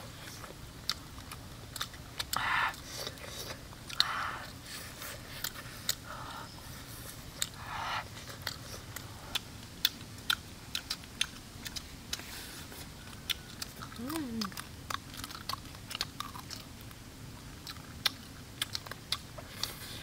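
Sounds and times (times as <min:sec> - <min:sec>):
crunching and chewing: 0:00.0 - 0:20.0
sharp biting clicks: 0:09.3 - 0:12.2.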